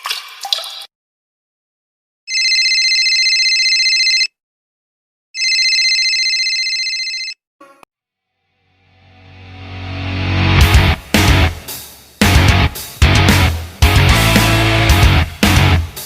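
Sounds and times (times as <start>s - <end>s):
telephone ringing: 2.3s - 4.4s, 5.4s - 7.4s.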